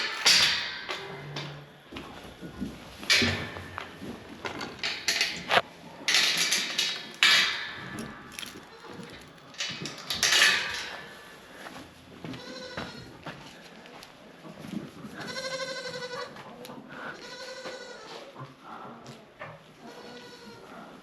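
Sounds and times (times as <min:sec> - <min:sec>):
goats bleating: 0:15.2 - 0:16.4, 0:17.0 - 0:18.2.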